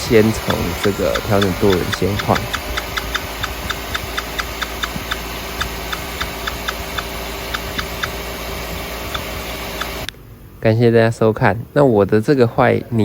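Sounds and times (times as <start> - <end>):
car engine running: 0.0 - 10.4.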